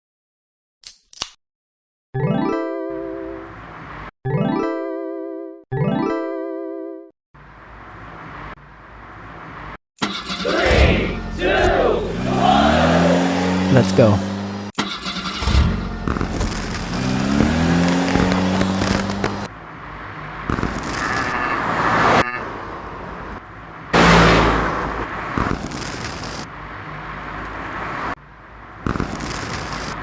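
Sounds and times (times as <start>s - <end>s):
car and road noise: 3.0s - 4.1s, 7.4s - 30.0s
engine note rising in pitch: 10.4s - 14.6s, 24.0s - 25.1s.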